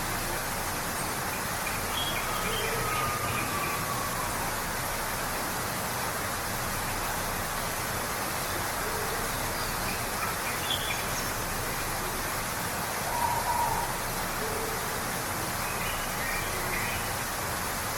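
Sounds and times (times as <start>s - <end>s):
waterfall rushing: 0.0s - 17.9s.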